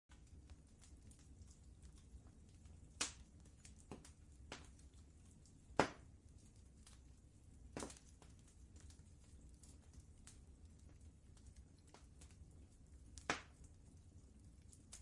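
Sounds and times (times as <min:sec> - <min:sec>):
low steady rumble: 0:00.1 - 0:15.0
wood fire crackling: 0:00.1 - 0:15.0.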